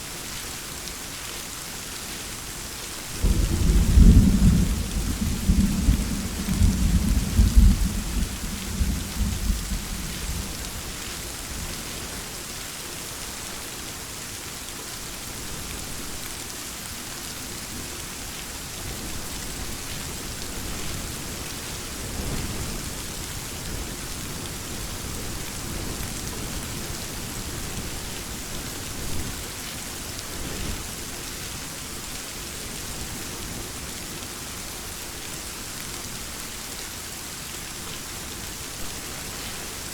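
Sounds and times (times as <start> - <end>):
steady rain falling: 0.0 - 39.9
thunder rumbling: 3.2 - 10.7.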